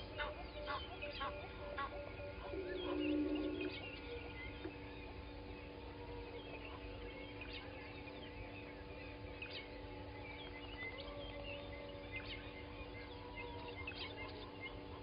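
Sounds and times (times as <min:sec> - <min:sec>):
birds chirping and whistling: 0:00.0 - 0:15.0
steady low hum: 0:00.0 - 0:15.0.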